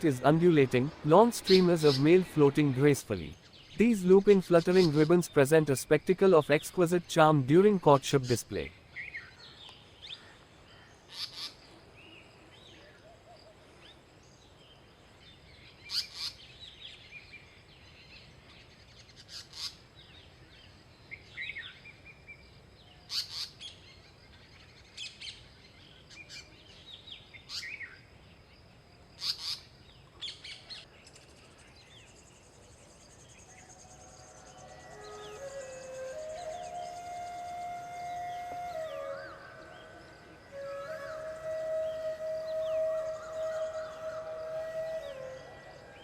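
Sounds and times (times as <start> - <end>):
faint bird twittering: 29.2 - 46.0.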